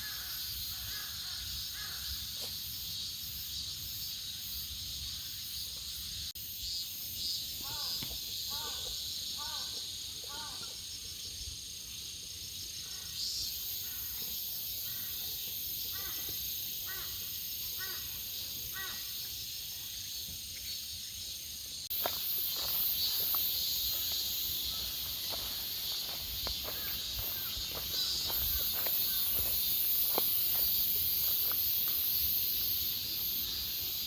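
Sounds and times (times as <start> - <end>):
cicadas droning: 0.0 - 34.0
crow cawing: 7.6 - 8.8, 9.4 - 9.7, 15.9 - 17.2, 17.8 - 18.1, 18.7 - 19.1
footsteps scuffing on path: 21.9 - 32.4.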